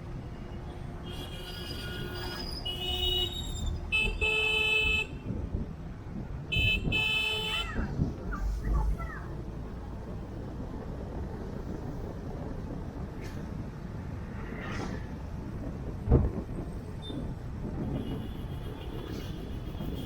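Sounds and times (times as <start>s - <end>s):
low rumble of traffic: 0.0s - 20.0s
vehicle horns honking: 1.0s - 5.2s, 6.5s - 7.8s, 17.8s - 20.0s.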